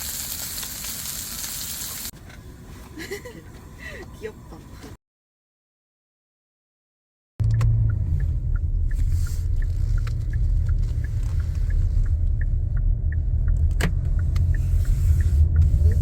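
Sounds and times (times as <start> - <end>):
car cabin rumble: 7.4 - 16.0
faint light ticks: 7.4 - 16.0.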